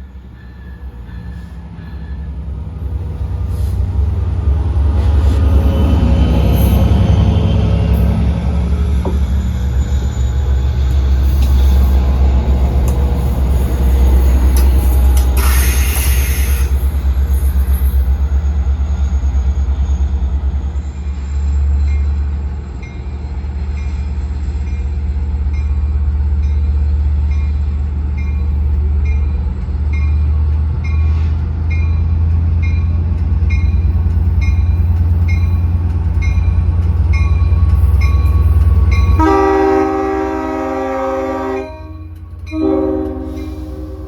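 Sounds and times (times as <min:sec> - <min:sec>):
diesel locomotive rumble: 0:00.0 - 0:44.0
crossing bell dinging: 0:28.2 - 0:40.4, 0:41.5 - 0:44.0
locomotive horn: 0:39.0 - 0:44.0.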